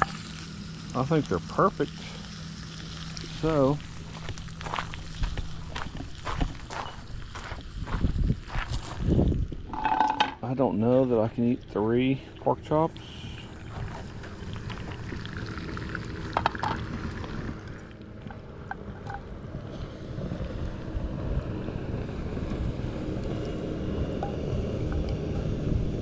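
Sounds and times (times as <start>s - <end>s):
wind rumble on microphone: 4.2s - 10.1s, 13.5s - 26.0s.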